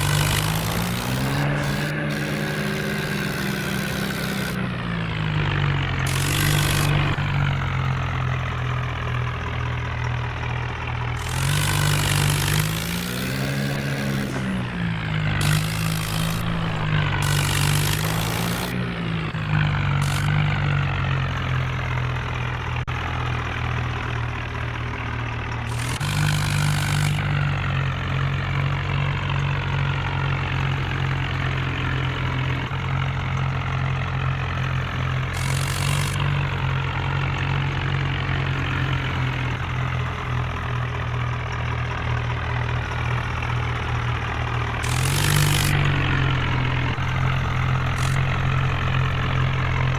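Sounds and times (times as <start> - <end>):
tractor engine running: 0.0 - 49.9
bursts of rushing noise: 44.8 - 49.9.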